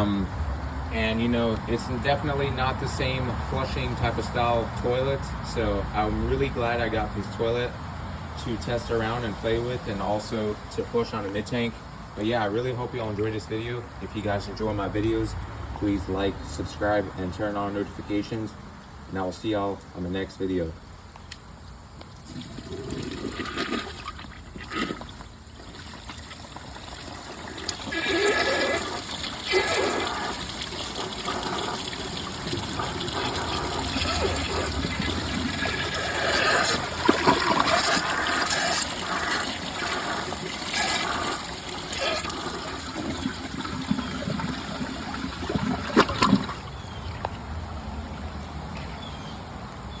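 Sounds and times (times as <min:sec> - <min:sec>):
toilet flushing: 0:22.2 - 0:46.9.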